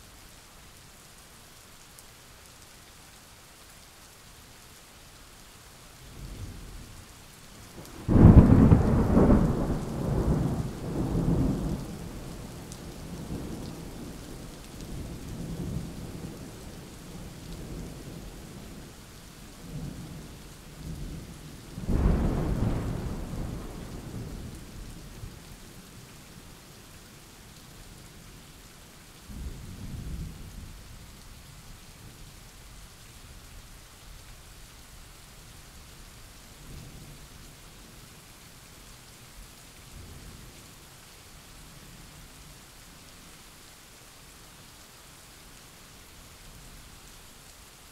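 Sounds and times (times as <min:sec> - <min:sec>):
steady rain: 0:00.0 - 0:47.9
thunder rumbling: 0:07.8 - 0:14.1, 0:21.8 - 0:24.6.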